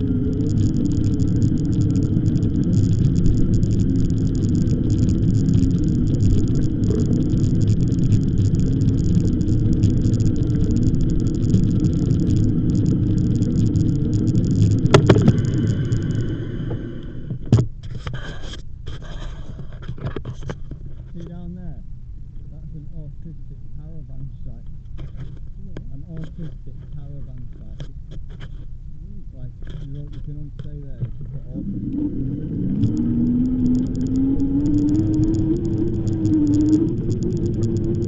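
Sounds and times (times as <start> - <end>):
bike tyres on path: 0.0 - 18.0
wind buffeting microphone: 30.9 - 38.0.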